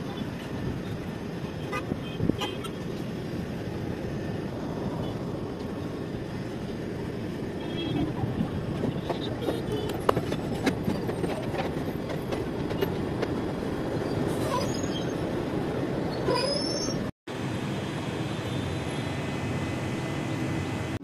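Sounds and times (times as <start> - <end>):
train rumbling: 2.8 - 17.1
wheels clicking over rail joints: 8.2 - 13.9
train wheels squealing: 14.0 - 15.3, 16.1 - 17.1.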